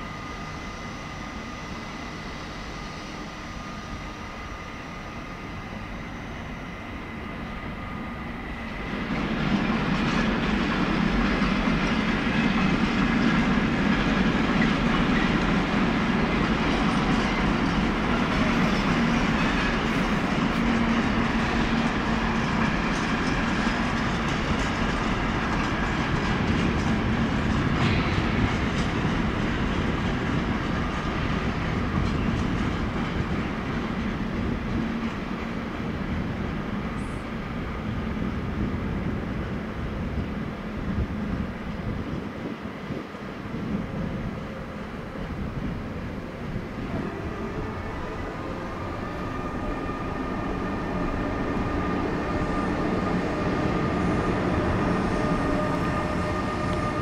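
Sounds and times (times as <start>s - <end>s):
train rolling noise: 0.0s - 57.0s.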